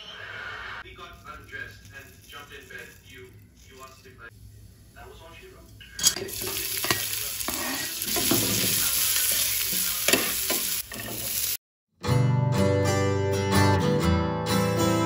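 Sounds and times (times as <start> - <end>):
food sizzling in hot oil: 6.0 - 11.6.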